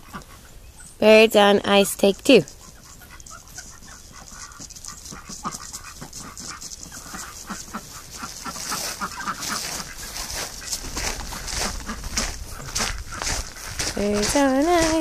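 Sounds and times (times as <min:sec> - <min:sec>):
soft bird calls: 0:00.0 - 0:14.0
birds tapping and scraping on ice: 0:01.0 - 0:15.0.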